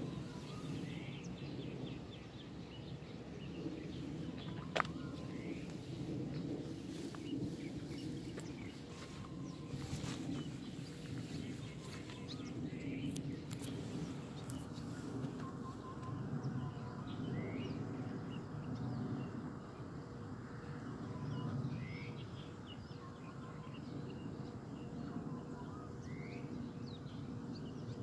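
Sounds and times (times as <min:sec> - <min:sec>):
bird chirps: 0:06.9 - 0:17.8.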